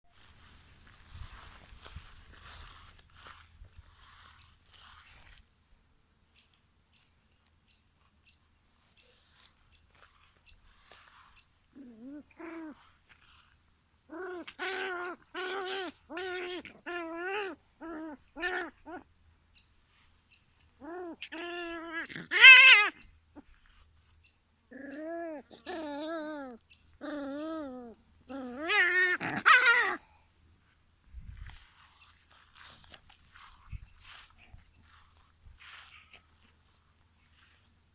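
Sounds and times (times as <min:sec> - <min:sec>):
dog whining: 0:14.1 - 0:19.0, 0:20.8 - 0:23.5, 0:24.7 - 0:30.2.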